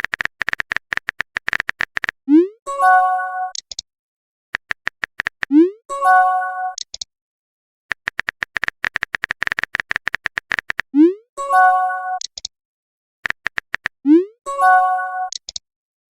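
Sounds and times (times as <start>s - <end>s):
phone keyboard tap clicks: 7.9s - 10.8s, 13.2s - 13.9s.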